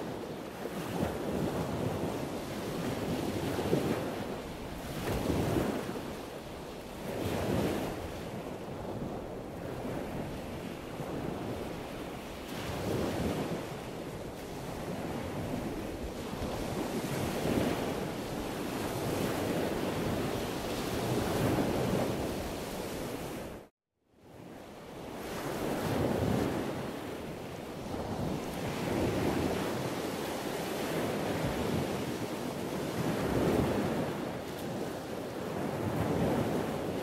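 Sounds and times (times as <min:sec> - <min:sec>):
wind buffeting microphone: 0:00.0 - 0:23.7, 0:25.0 - 0:37.0
sea waves breaking on rocky shore: 0:00.1 - 0:08.5.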